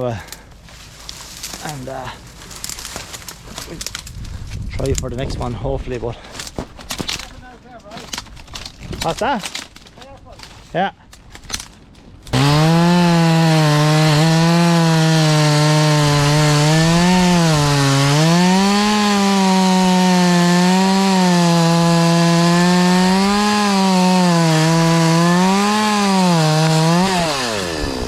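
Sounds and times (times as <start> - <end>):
chainsaw cutting log: 12.3 - 28.0.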